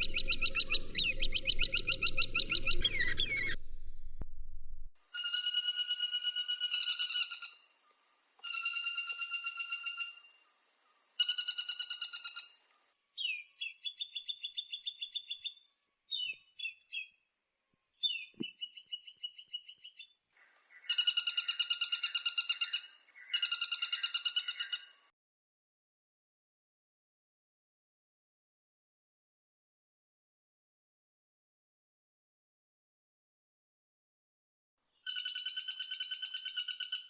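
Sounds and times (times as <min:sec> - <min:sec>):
woodpecker rattling calls: 0:20.7 - 0:25.0.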